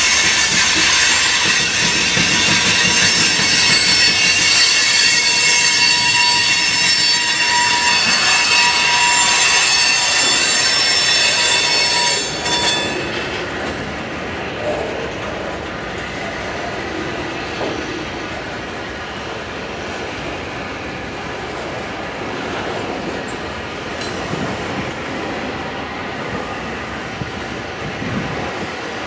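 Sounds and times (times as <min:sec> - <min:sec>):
high-pitched wheel squeal: 0:00.0 - 0:13.3
freight train wheels rumbling: 0:00.0 - 0:29.0.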